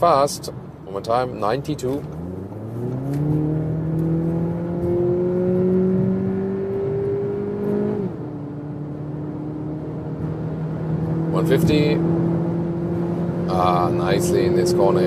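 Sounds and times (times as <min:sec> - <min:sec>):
car engine accelerating hard: 0:01.8 - 0:15.0.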